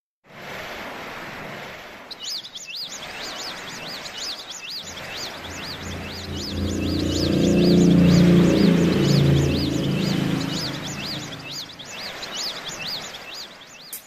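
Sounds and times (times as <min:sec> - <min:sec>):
birds chirping: 0:02.4 - 0:14.0
steady rushing noise: 0:04.8 - 0:12.0
low tone of backing music: 0:04.9 - 0:12.0.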